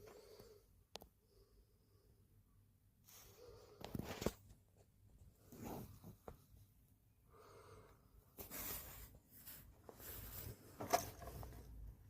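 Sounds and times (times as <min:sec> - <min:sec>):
soft rustles: 0:03.1 - 0:06.9, 0:08.3 - 0:12.0.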